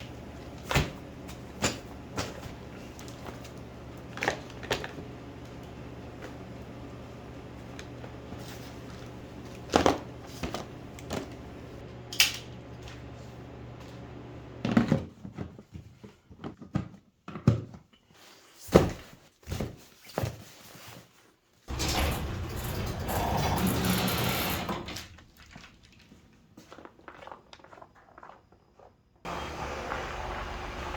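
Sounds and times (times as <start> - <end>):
objects knocking and thunking: 0.0 - 11.8.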